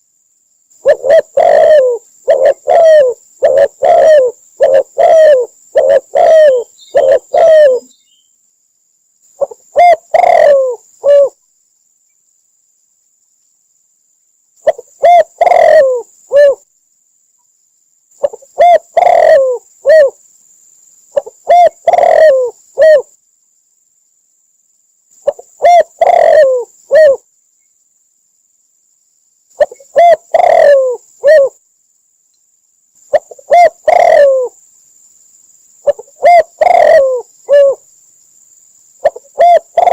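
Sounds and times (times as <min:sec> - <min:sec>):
dove cooing: 0:00.8 - 0:08.0, 0:09.4 - 0:11.4, 0:14.6 - 0:16.6, 0:18.2 - 0:20.2, 0:21.2 - 0:23.1, 0:25.2 - 0:27.2, 0:29.6 - 0:31.6, 0:33.1 - 0:34.6, 0:35.8 - 0:37.8, 0:39.0 - 0:39.9.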